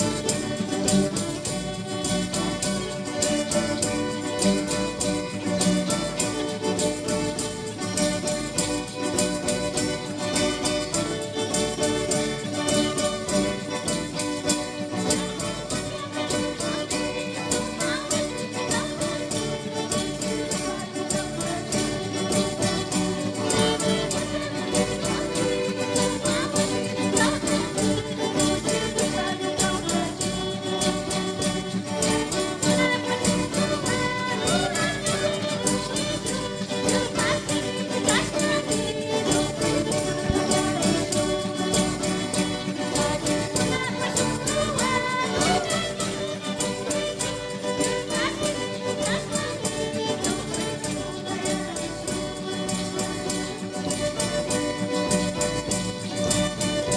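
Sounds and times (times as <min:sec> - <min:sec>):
church band music: 0:07.5 - 0:47.1.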